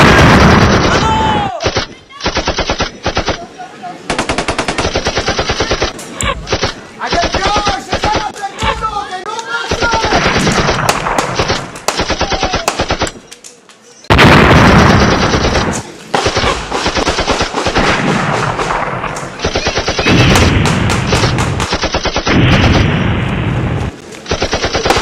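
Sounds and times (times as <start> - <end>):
automatic gunfire with blanks: 0.0 - 3.5, 4.1 - 8.4, 9.7 - 13.2, 14.1 - 23.0, 24.3 - 25.0.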